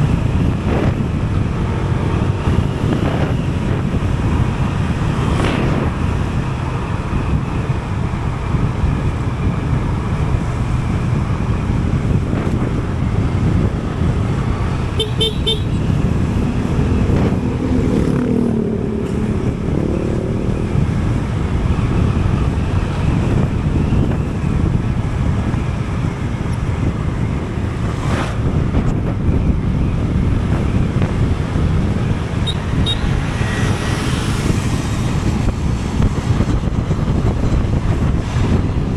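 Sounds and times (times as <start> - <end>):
passing traffic: 0.0 - 38.9
vehicle wind and road noise: 0.0 - 38.9
short horn toots: 15.0 - 15.8, 32.5 - 33.2
engine note rising and falling: 16.2 - 21.4.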